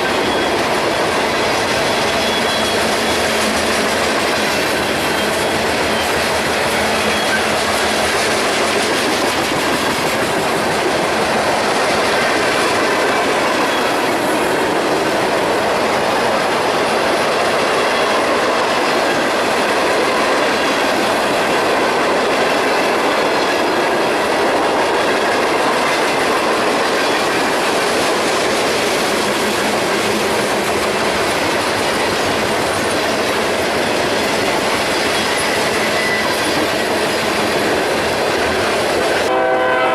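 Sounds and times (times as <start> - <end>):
faint high wheel squeal: 0.0 - 3.6, 4.6 - 7.9, 35.1 - 36.8
clickety-clack over rail joints: 0.0 - 39.3
train wheels rushing on rail: 0.0 - 39.9.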